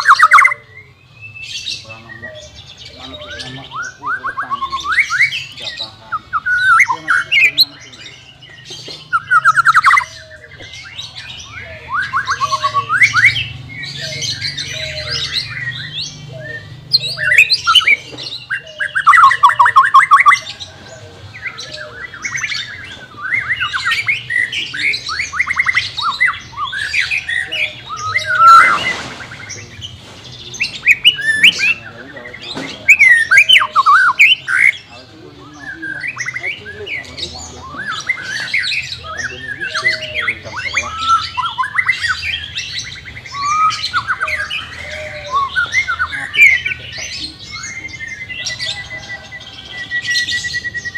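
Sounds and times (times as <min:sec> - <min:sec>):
bird singing trills and whistles: 0:00.0 - 0:50.9
harsh bird rasp: 0:16.9 - 0:34.9.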